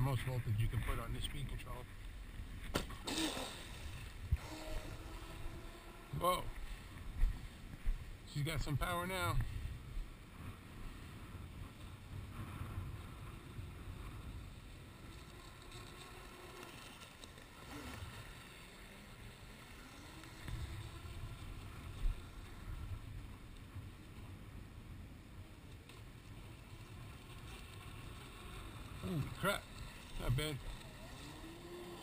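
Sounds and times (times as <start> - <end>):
model boat motor whine: 0.0 - 7.8, 10.2 - 32.0
short thump: 2.6 - 3.2.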